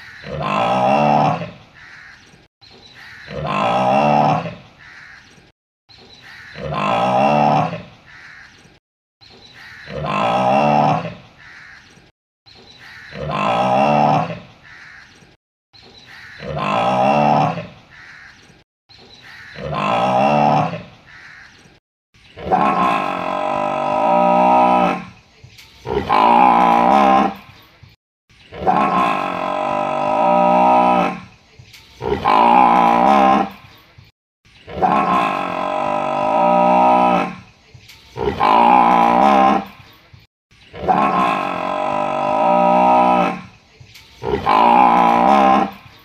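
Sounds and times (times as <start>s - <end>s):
cow mooing: 25.8s - 27.4s, 28.6s - 31.3s, 32.0s - 33.6s, 38.2s - 39.8s, 40.8s - 43.6s, 44.2s - 45.9s.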